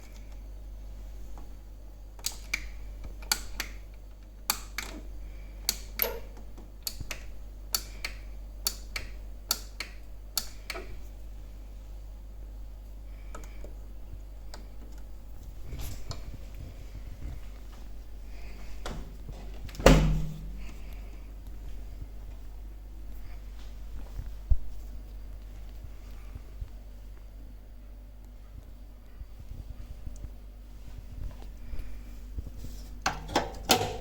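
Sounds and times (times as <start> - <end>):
low steady hum: 0.0 - 34.0
washing machine clicks and taps: 33.0 - 34.0.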